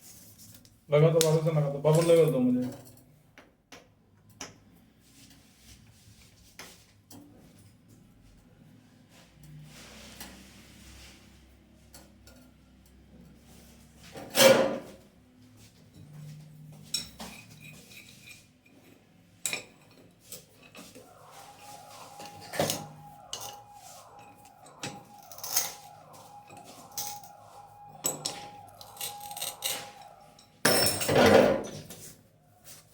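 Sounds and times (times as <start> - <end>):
rhythmic scraping: 20.8 - 30.6
metal tools clinking: 22.2 - 32.1
metal clank: 30.6 - 31.9.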